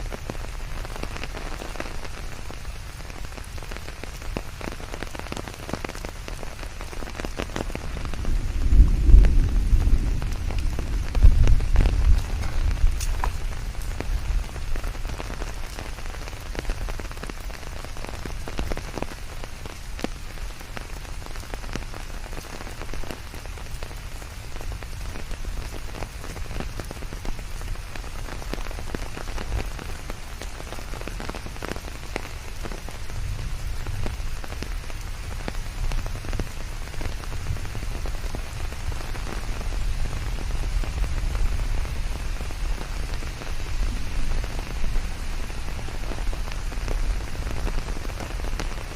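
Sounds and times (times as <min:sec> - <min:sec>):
rain falling on a surface: 0:00.0 - 0:48.9
low rumble: 0:08.2 - 0:14.4.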